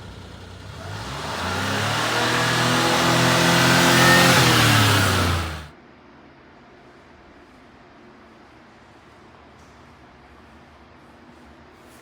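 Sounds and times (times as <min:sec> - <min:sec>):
small truck engine revving: 0:00.0 - 0:05.7.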